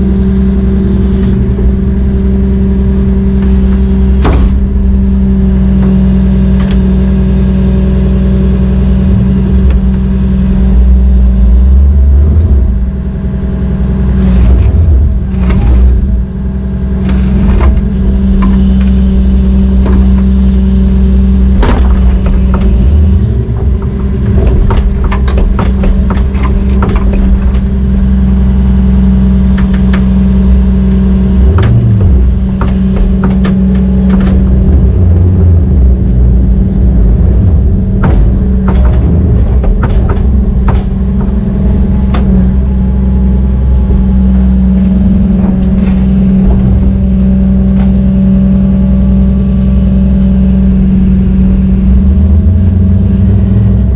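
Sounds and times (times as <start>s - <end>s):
heavy diesel engine running: 0.0s - 53.9s
metal clanks and knocks: 3.3s - 7.1s, 14.4s - 48.5s.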